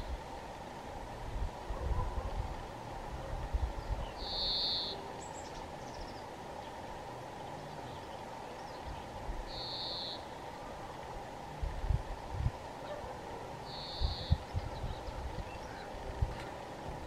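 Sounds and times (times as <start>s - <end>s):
faint bird chirps: 3.8s - 6.8s, 7.4s - 10.4s, 13.6s - 16.0s
high bird notes: 13.7s - 14.8s.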